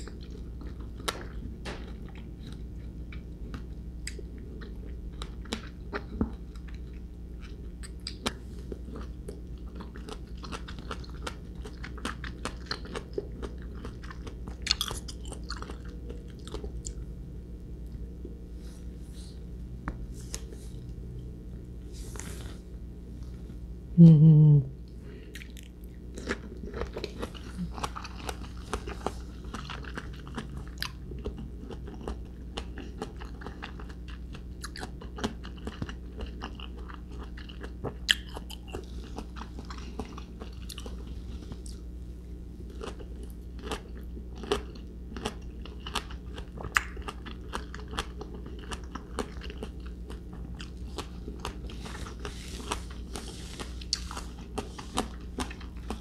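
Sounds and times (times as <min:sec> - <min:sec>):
wet crunchy chewing: 0:00.0 - 0:17.1, 0:25.3 - 0:41.9, 0:42.6 - 0:56.0
steady low hum: 0:00.0 - 0:56.0.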